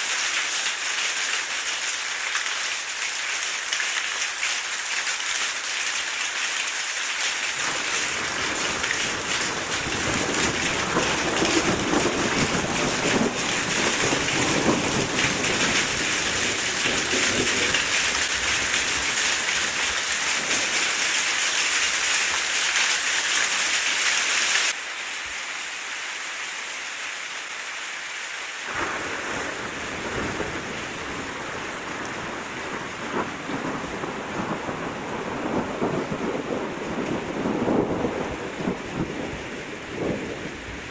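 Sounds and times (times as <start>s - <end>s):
heavy rain: 0.0s - 40.9s
thunder rumbling: 7.6s - 21.3s, 28.7s - 40.9s.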